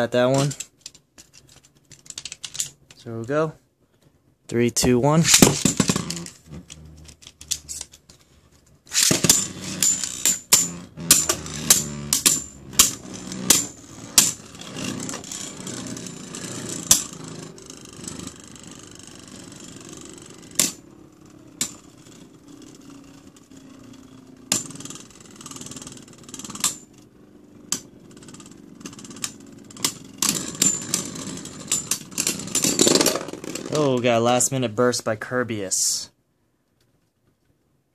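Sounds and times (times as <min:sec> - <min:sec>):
spinning tops whirring scrape: 0:05.1 - 0:08.0, 0:08.8 - 0:34.4
spinning tops clacking together: 0:08.9 - 0:20.9, 0:27.7 - 0:34.2.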